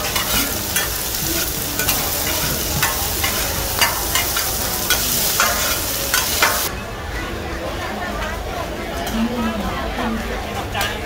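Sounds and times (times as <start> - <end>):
metal spatula scraping griddle: 0.0 - 6.7
omelettes sizzling on griddle: 0.0 - 6.7.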